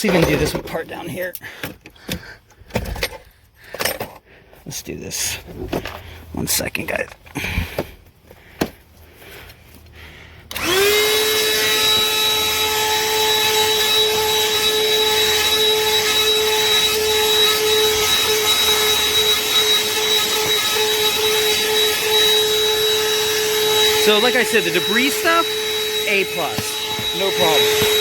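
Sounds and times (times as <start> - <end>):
handheld vacuum motor whine: 10.4 - 28.0.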